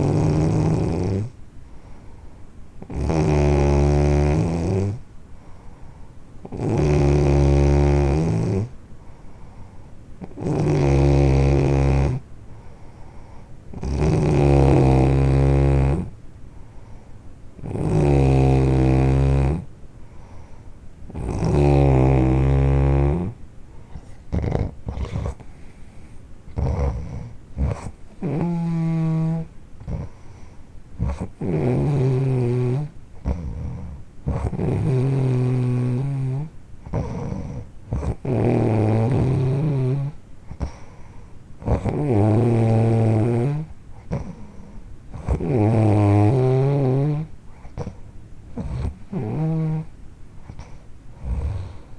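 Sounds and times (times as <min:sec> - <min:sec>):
loud buzzing snores: 0:00.0 - 0:01.4, 0:02.8 - 0:05.0, 0:06.4 - 0:08.7, 0:10.2 - 0:12.2, 0:13.7 - 0:16.2, 0:17.6 - 0:19.7, 0:21.1 - 0:23.4, 0:24.3 - 0:25.4, 0:26.5 - 0:30.2, 0:31.0 - 0:40.9, 0:41.6 - 0:48.0, 0:48.6 - 0:49.9, 0:50.5 - 0:51.9
crackly clicking breaths: 0:01.6 - 0:02.6, 0:05.3 - 0:06.7, 0:08.7 - 0:10.8, 0:12.2 - 0:14.4, 0:16.4 - 0:17.6, 0:19.9 - 0:21.8, 0:23.4 - 0:28.8, 0:29.4 - 0:32.0, 0:39.0 - 0:42.2, 0:43.4 - 0:46.2, 0:47.0 - 0:51.9.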